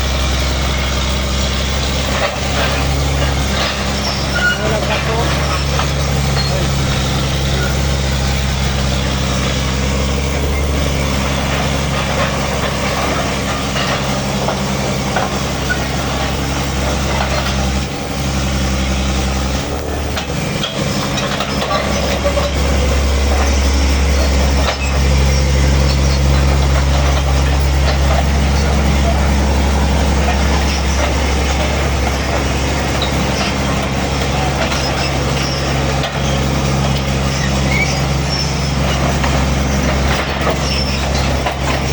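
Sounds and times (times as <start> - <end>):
backhoe engine running: 0.0 - 41.9.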